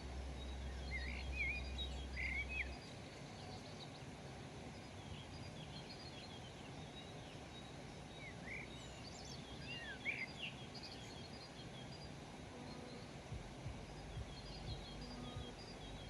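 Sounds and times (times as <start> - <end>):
outdoor background rumble: 0.0 - 10.6, 11.2 - 16.0
songbirds chirping: 0.0 - 16.0
soft low thumps: 13.3 - 16.0.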